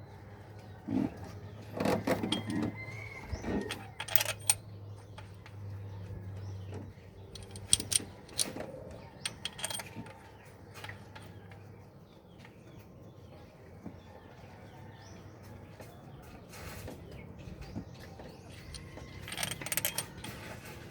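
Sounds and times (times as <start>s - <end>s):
metal tools clinking: 2.2s - 2.8s, 3.6s - 4.7s, 7.3s - 10.2s, 18.5s - 20.9s.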